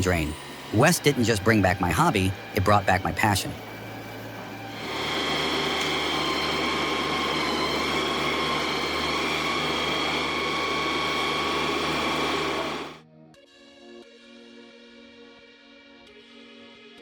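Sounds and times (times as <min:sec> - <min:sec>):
machine motor humming and whining: 0:00.0 - 0:13.0.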